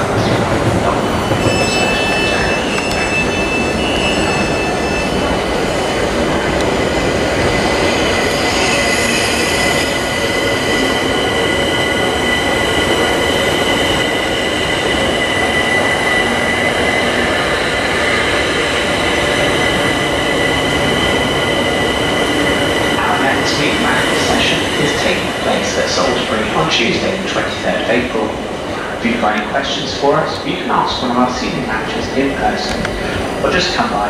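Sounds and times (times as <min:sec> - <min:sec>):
electric train rumbling: 0:00.0 - 0:34.0
high wheel squeal: 0:00.9 - 0:27.5.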